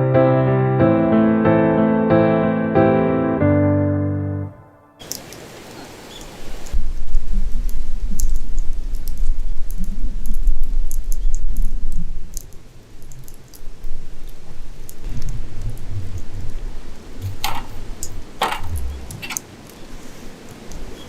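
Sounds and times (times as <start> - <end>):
wind buffeting microphone: 5.9 - 21.0
campfire crackling and popping: 6.6 - 19.8.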